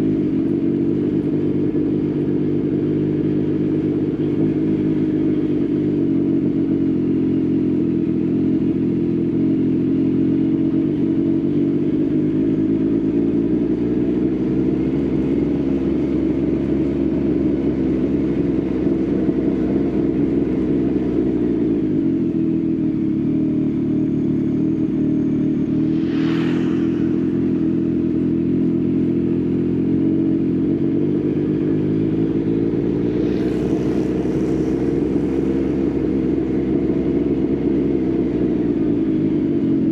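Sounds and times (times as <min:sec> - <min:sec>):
motorcycle engine running: 0:00.0 - 0:39.9
brief rushing noise: 0:25.3 - 0:29.6, 0:32.4 - 0:37.6.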